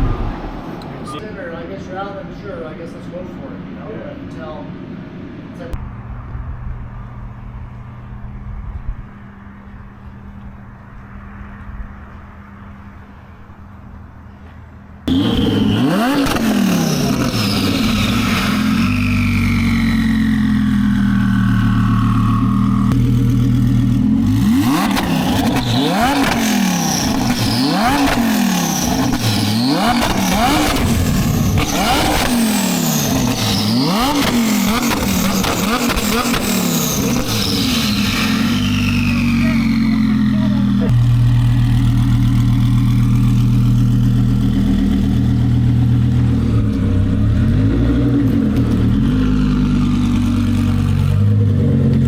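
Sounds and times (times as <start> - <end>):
sports car engine revving: 15.0 - 52.0.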